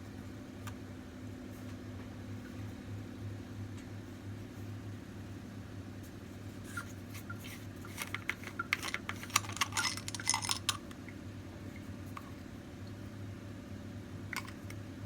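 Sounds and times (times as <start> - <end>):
hard clicks and clinks of parts: 7.9 - 10.9.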